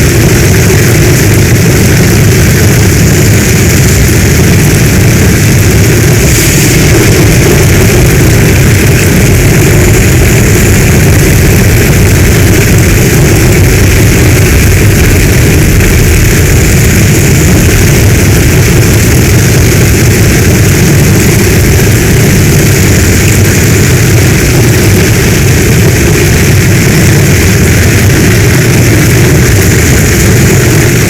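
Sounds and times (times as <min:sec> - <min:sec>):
heavy rain pouring: 0:00.0 - 0:31.0.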